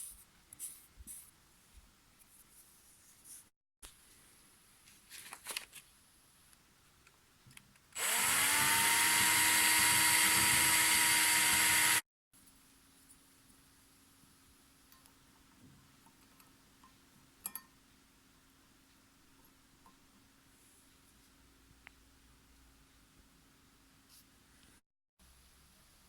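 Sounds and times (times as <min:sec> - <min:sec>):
electric power tool spinning: 0:08.0 - 0:12.0.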